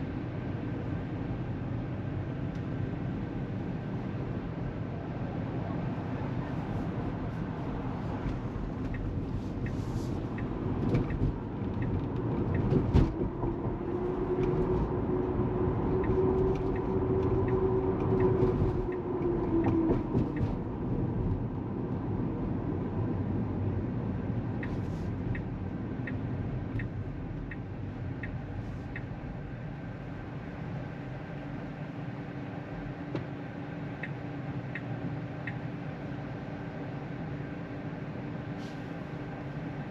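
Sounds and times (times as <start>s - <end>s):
road and tyre noise: 0.0s - 39.9s
turn signal ticking: 8.2s - 14.7s, 15.7s - 20.6s, 24.4s - 29.8s, 33.9s - 35.8s.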